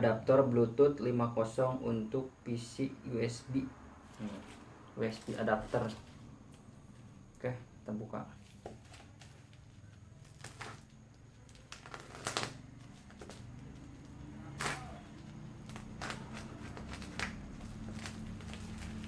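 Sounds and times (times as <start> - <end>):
low steady hum: 0.0 - 19.0
packaging rustling and crackling: 8.4 - 19.0.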